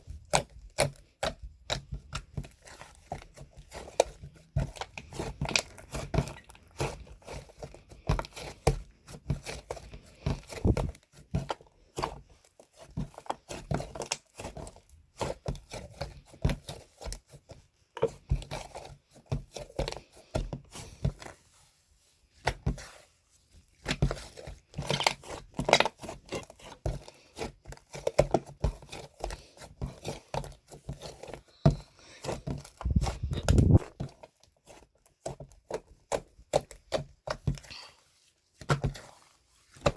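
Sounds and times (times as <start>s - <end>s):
crinkling and tearing: 2.4s - 8.5s, 23.7s - 36.8s.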